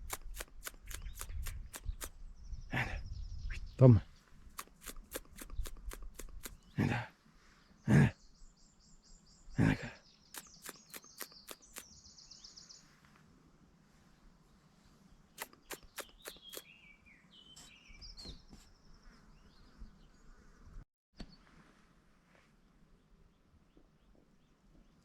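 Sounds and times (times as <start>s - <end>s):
sharp clicking bird notes: 0.0s - 2.2s, 4.5s - 6.7s, 10.4s - 12.0s, 15.4s - 16.7s
high bird trill: 10.4s - 12.0s, 15.4s - 16.8s
descending whistled bird notes: 15.4s - 18.4s.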